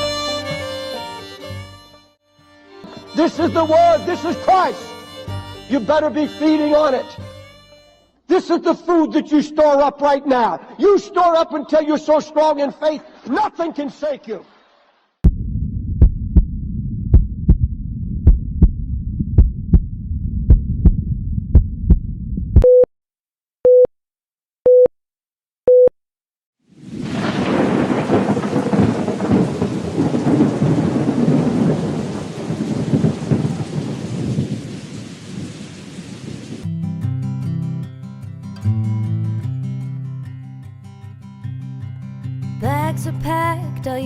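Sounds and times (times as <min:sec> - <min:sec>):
guitar music: 0:00.0 - 0:08.2, 0:36.6 - 0:44.0
low rumble: 0:15.3 - 0:22.6
short beeps: 0:22.6 - 0:22.9, 0:23.7 - 0:23.9, 0:24.7 - 0:24.9, 0:25.7 - 0:26.0.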